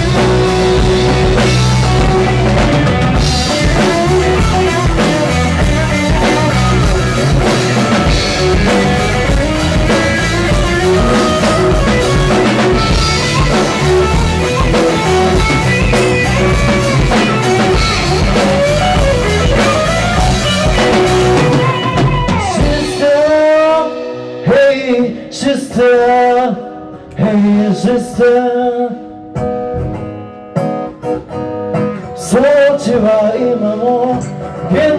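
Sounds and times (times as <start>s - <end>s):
drum kit: 0.0s - 27.5s
person singing: 0.0s - 29.2s, 32.0s - 34.9s
electric guitar: 0.0s - 34.9s
rock band playing: 0.0s - 34.9s.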